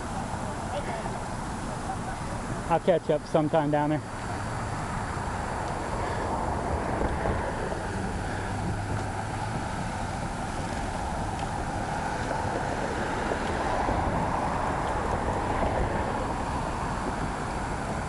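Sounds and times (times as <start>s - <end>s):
bicycle rolling rumble: 0.0s - 18.0s
wind rushing over microphone: 4.7s - 18.0s.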